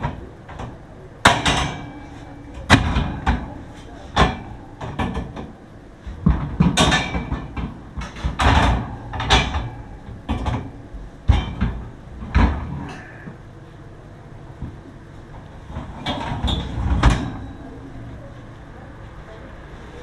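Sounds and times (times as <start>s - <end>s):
irregular knocks and clatters: 0.0s - 13.4s.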